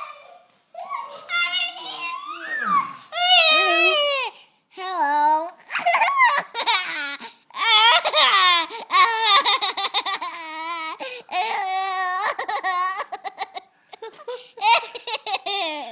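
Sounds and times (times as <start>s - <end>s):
high-pitched voice squealing: 1.8s - 4.0s.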